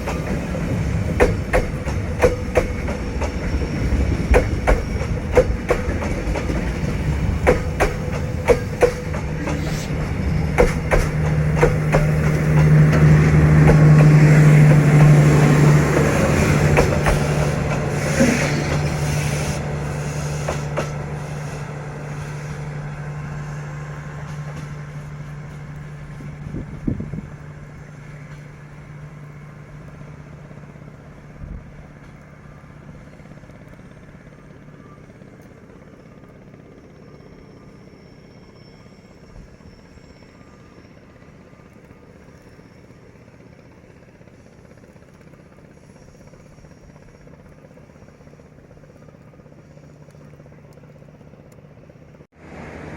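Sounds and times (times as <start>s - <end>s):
diesel locomotive engine hum: 0.0s - 52.9s
scattered knocks: 10.4s - 15.2s.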